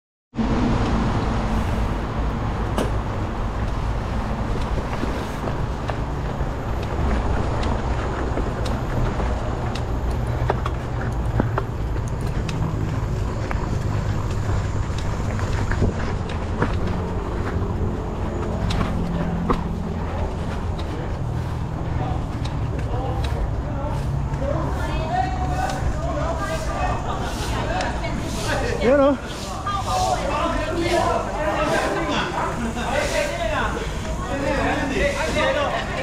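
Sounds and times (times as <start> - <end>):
wind and rolling tyres: 0.3 - 36.0
bike rattling over bumps: 2.4 - 23.8.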